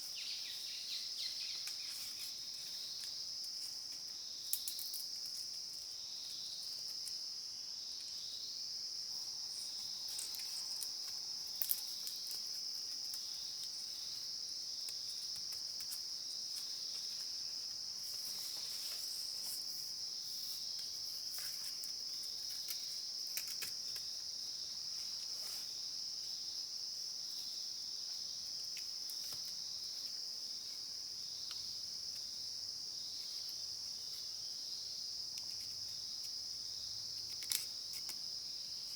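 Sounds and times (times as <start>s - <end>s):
insects droning: 0.0s - 38.9s
small clicks and rustles: 1.6s - 5.9s, 9.8s - 13.9s, 14.8s - 19.9s, 20.7s - 24.2s, 28.6s - 30.1s, 37.2s - 38.2s.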